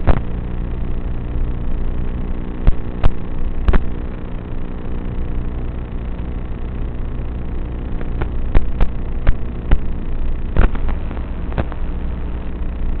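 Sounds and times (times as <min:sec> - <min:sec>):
drone motors humming: 0:00.0 - 0:13.0.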